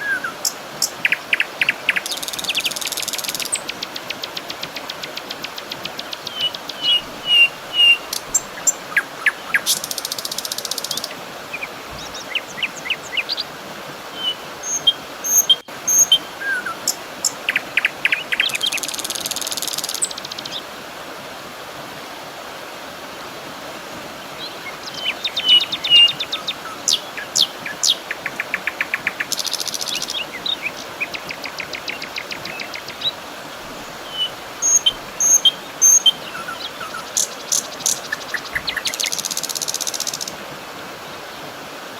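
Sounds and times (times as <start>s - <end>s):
wild birds chirping and trilling: 0.0s - 13.5s, 24.3s - 40.3s
outdoor ambient hiss: 0.0s - 41.9s.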